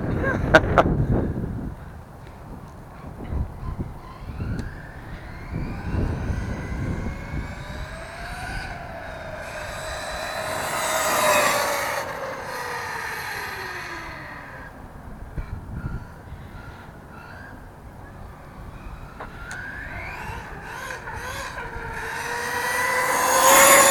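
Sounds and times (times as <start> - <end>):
electric motor whine: 3.6 - 15.1, 17.4 - 23.9.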